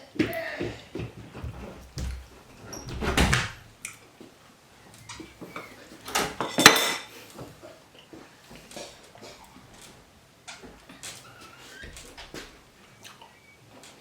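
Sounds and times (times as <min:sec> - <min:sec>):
rustling and clatter of dishes: 0:05.1 - 0:13.0.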